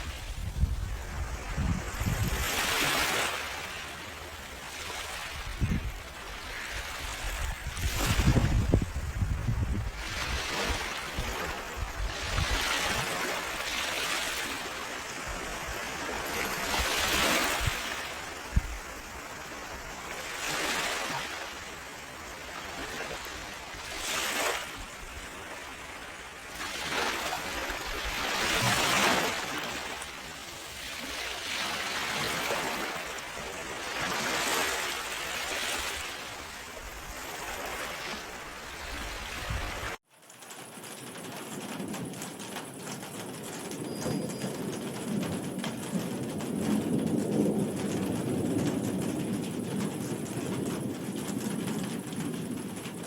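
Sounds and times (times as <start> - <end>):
ocean waves washing in: 0.0 - 40.0.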